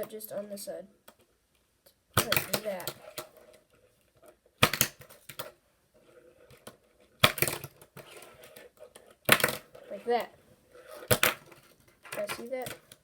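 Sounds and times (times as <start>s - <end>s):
fingerboard landing clacks: 11.0s - 13.0s.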